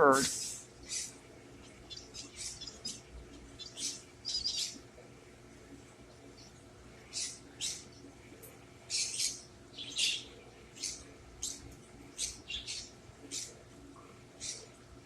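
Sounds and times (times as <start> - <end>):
bird chirping: 0.3 - 4.8, 6.1 - 8.1, 8.9 - 13.6, 14.4 - 14.7.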